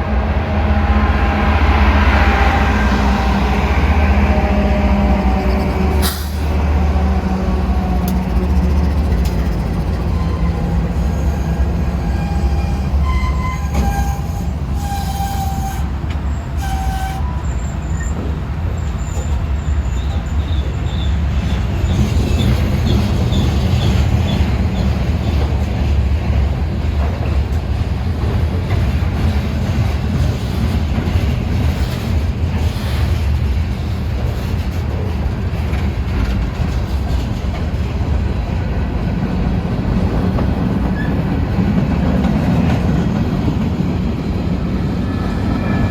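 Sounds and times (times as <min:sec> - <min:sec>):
freight train rumbling on rails: 0:00.0 - 0:45.9
train wheel squeals: 0:01.6 - 0:25.6, 0:29.8 - 0:34.8, 0:40.8 - 0:45.9.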